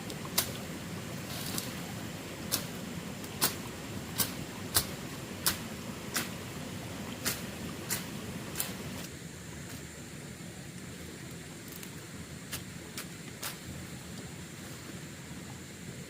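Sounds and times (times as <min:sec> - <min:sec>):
low background noise: 0:00.0 - 0:16.0.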